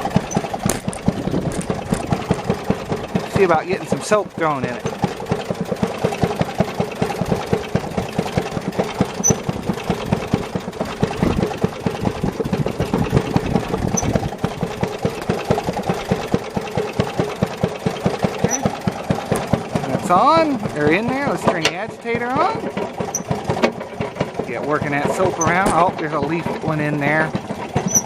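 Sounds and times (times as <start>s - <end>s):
quiet two-stroke engine running: 0.0s - 28.0s.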